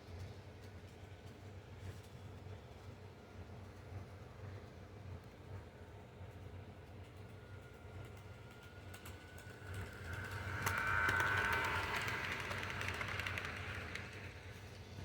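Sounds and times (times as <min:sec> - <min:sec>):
toy train running on track: 0:06.8 - 0:15.0
low hum: 0:07.4 - 0:15.0.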